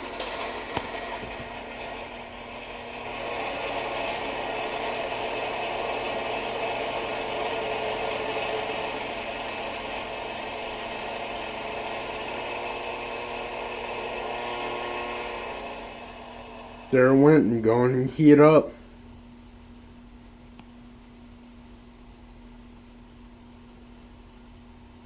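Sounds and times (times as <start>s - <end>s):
electric heater rattling: 0.0s - 19.0s
low electrical hum: 0.0s - 25.0s.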